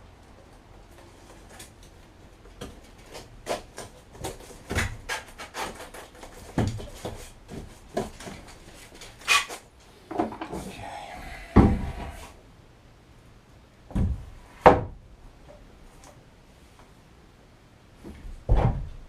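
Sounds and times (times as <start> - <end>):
heavy thumps: 11.4 - 12.3, 18.0 - 19.0.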